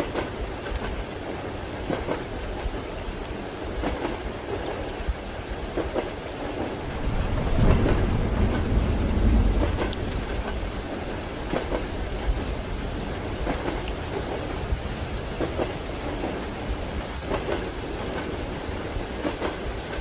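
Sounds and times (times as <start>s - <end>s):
rain pattering: 0.0s - 20.0s
low rumble: 6.9s - 13.5s.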